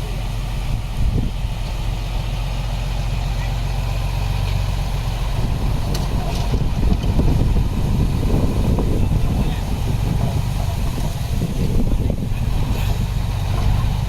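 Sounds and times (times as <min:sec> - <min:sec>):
heavy diesel machinery engine drone: 0:00.0 - 0:14.0.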